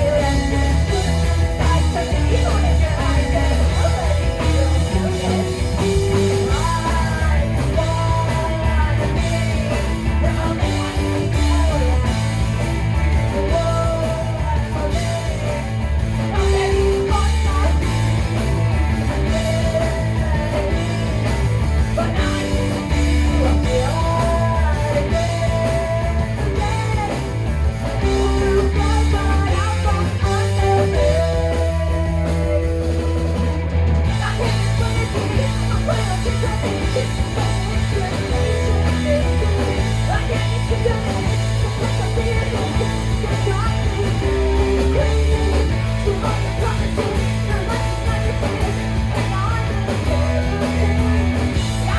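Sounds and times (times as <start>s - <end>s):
person singing: 0.0s - 51.9s
rock band playing live: 0.0s - 51.9s.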